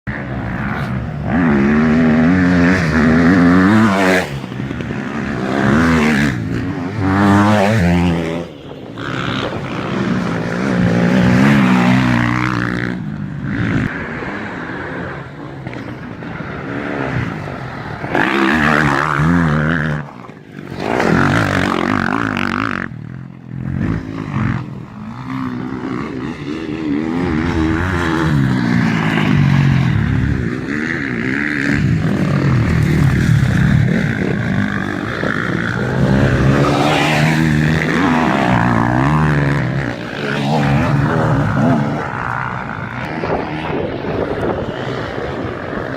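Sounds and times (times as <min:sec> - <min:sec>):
motocross motorcycle engines racing: 0:00.0 - 0:45.9.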